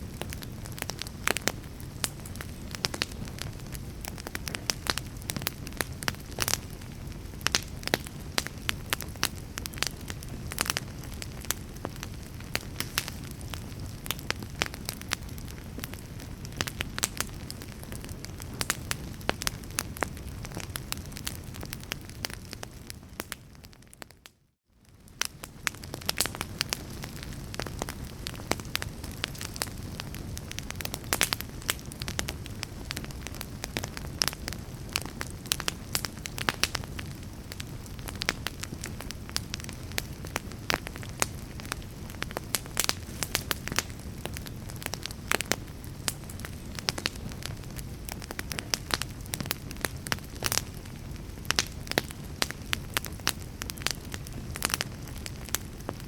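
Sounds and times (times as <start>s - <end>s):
fire crackling and popping: 0.0s - 56.0s.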